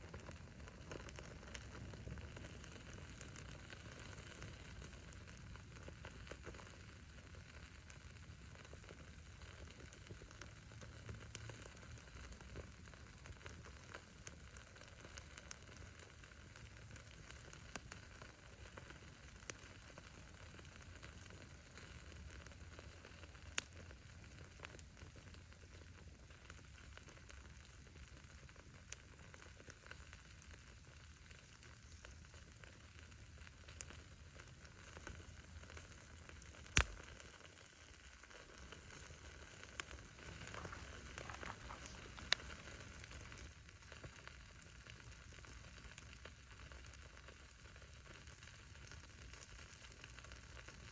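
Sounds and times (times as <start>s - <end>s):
low rumble of flames: 0.0s - 50.9s
firewood popping: 8.5s - 28.0s, 28.9s - 50.9s
firewood popping and snapping: 36.2s - 37.3s, 38.3s - 44.2s.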